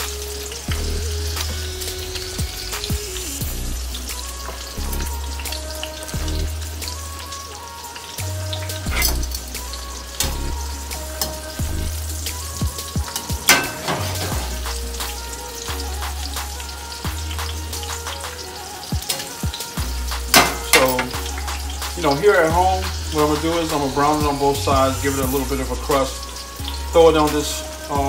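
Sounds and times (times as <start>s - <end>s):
chicken frying in oil: 0.0s - 28.0s
soft background music: 0.0s - 28.0s
metal tongs clicking on pan: 13.1s - 14.2s, 19.0s - 19.4s, 20.3s - 21.5s.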